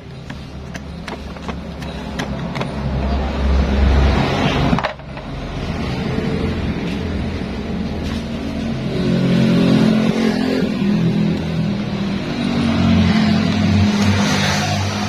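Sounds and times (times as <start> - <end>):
scooter engine starting and running: 0.0 - 3.7.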